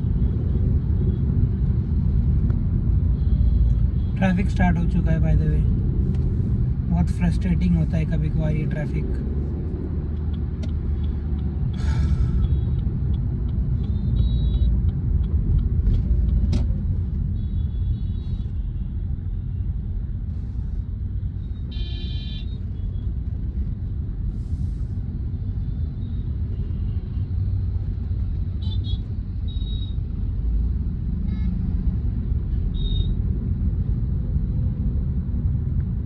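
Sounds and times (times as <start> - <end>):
car engine and road noise: 0.0 - 36.0
car horn beeps: 21.7 - 22.5.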